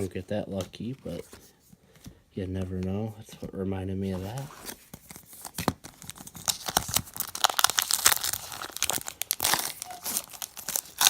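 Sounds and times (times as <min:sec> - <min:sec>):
card pack wrapper tearing: 0:05.4 - 0:11.0.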